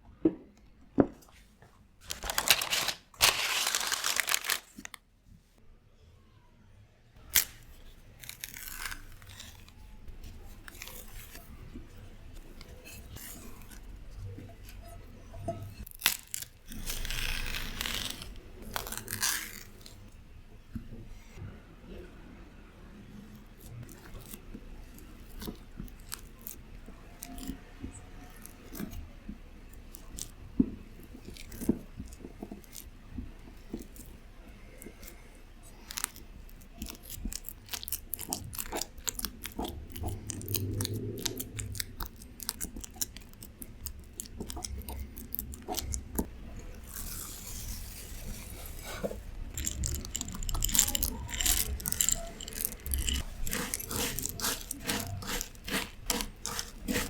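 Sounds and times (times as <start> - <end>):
utensil mixing food in bowl: 36.4 - 57.0.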